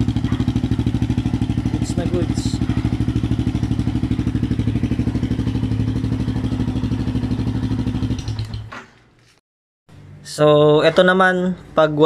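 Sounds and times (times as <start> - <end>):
motorcycle engine idling: 0.0 - 8.7.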